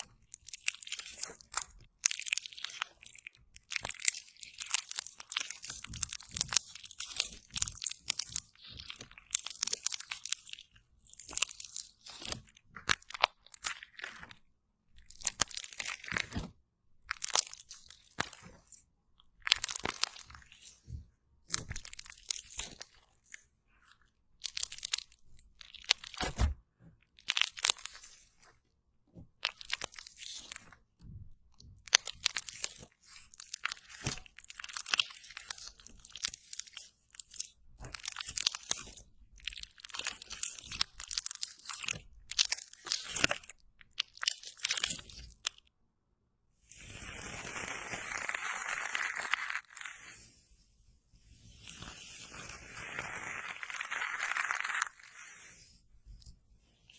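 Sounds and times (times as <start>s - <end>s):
slime squishing under hand: 0.0s - 45.7s.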